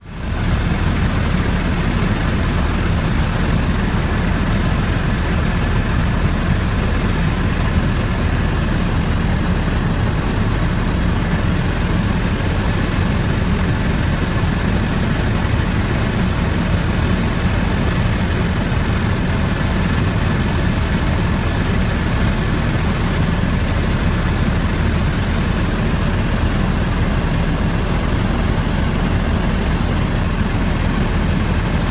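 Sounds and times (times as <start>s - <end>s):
helicopter engine and rotor: 0.0s - 31.9s.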